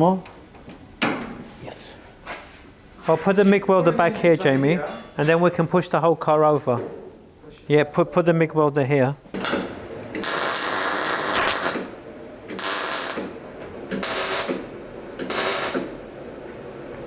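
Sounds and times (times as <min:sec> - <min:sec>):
loud hissing bursts: 0:10.2 - 0:13.4, 0:14.0 - 0:14.7, 0:15.3 - 0:16.0.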